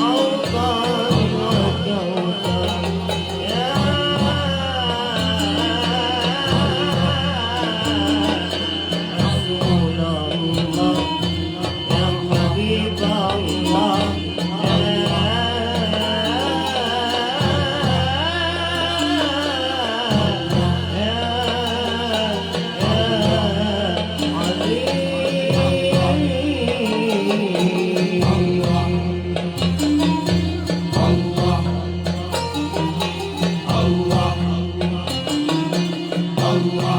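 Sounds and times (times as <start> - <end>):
sustained low bass notes: 0.0 - 19.4
percussion strokes: 0.0 - 36.9.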